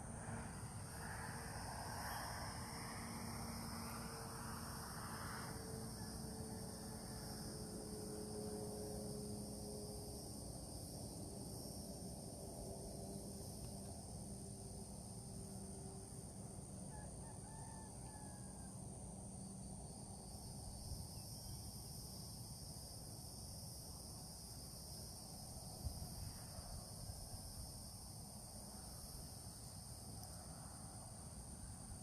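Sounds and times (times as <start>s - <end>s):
high insect chorus: 0.0s - 32.0s
low rumble of wind or traffic: 0.0s - 32.0s.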